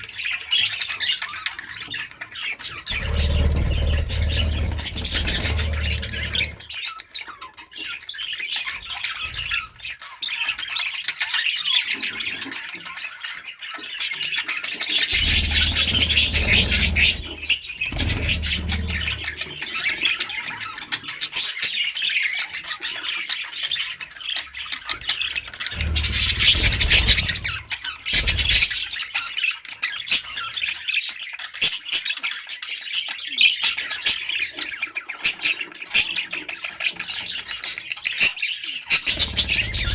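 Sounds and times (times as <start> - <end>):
budgerigars chattering and squawking: 0.0 - 39.9
low rumble: 3.0 - 6.6, 25.8 - 27.6.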